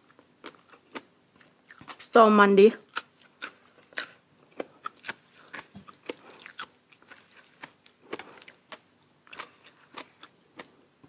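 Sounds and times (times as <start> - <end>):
crunchy food chewing: 0.0 - 2.0, 2.8 - 10.9.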